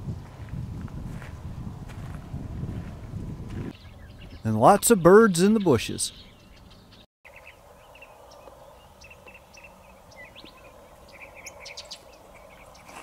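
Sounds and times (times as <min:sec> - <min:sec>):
small birds chirping: 0:03.6 - 0:13.0.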